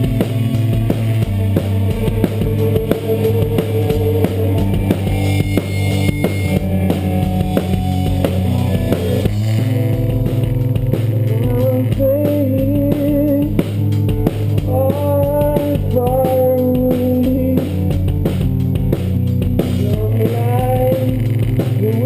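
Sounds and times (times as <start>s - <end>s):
wavering melodic lead line: 0.0s - 17.3s
bass: 0.0s - 22.0s
drum kit: 0.0s - 22.0s
guitar: 0.0s - 22.0s.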